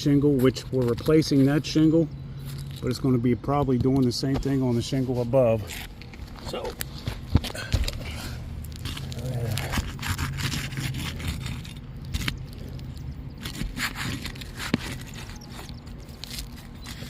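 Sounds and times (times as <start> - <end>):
low steady hum: 0.0 - 17.0
roof shingles scraping and tearing: 8.1 - 17.0.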